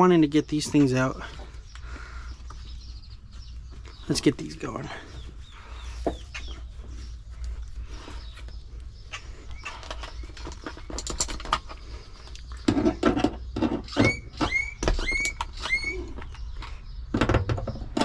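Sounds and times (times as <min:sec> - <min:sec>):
short rising squeaks: 0:13.8 - 0:16.2.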